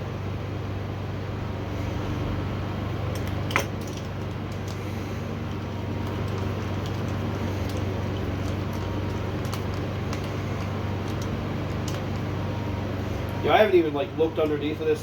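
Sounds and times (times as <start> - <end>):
low mechanical hum: 0.0 - 15.0
light clicks of small parts: 5.5 - 12.3.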